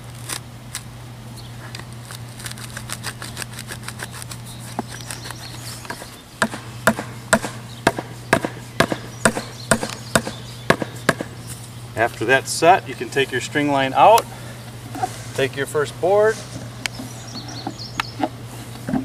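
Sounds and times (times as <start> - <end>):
steady low hum: 0.0 - 19.0
sharp knocks on bracket: 6.4 - 11.3.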